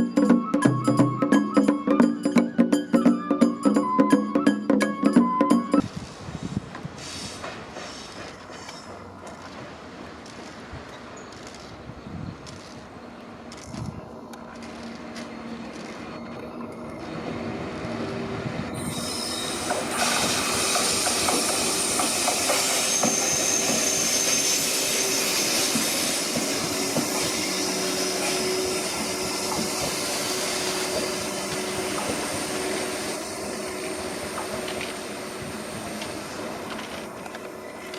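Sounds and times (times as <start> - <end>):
train rumble: 5.5 - 37.9
train wheels squealing: 7.0 - 9.0, 18.1 - 36.6.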